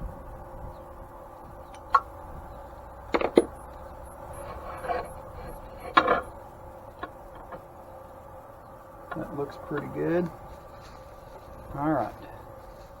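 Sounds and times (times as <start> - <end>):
metal parts knocking and clinking: 3.1 - 3.6, 4.4 - 6.3
metal parts rattling: 4.3 - 6.3.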